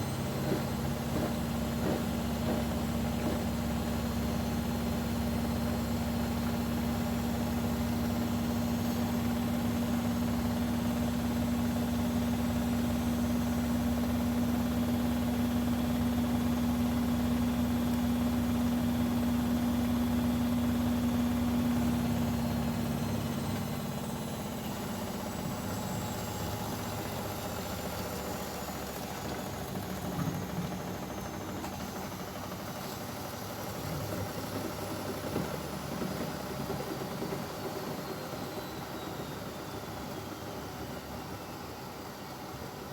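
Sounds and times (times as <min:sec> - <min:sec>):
washing machine motor hum: 0:00.0 - 0:28.0.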